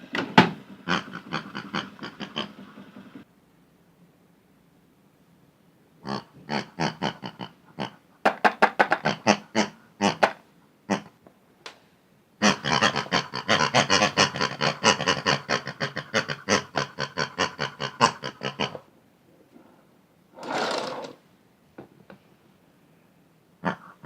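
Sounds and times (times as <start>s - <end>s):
toys clattering in toy washing machine: 20.4s - 21.2s.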